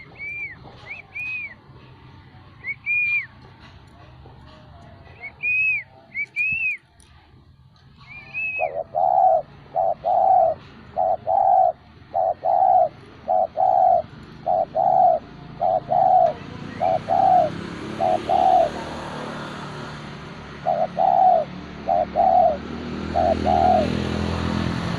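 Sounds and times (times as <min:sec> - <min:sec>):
dove cooing: 0:08.0 - 0:24.9.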